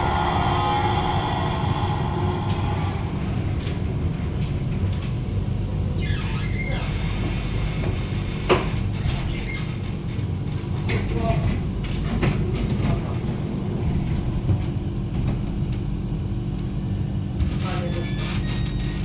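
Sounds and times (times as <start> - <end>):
tram running low rumble: 0.0 - 19.0
faint squeaks: 17.6 - 19.0.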